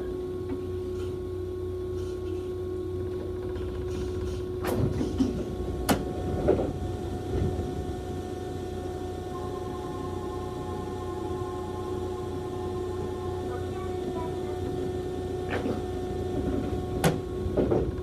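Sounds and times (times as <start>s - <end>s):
electric train humming: 0.0s - 18.0s
steady chime tone: 5.5s - 17.5s.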